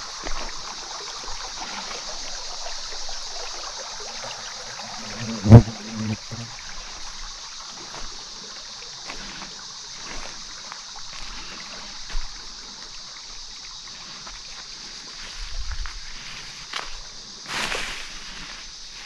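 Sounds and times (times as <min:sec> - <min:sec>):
footsteps on forest trail: 0:00.0 - 0:01.0, 0:07.0 - 0:19.0
outdoor ambience hiss: 0:00.0 - 0:19.0.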